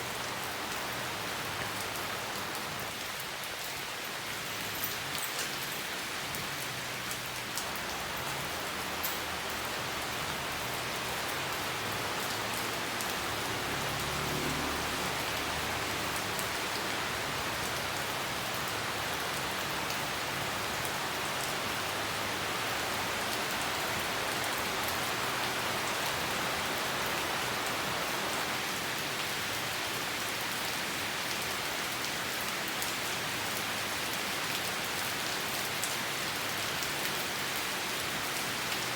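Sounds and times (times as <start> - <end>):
rain pattering on leaves: 0.0 - 38.9.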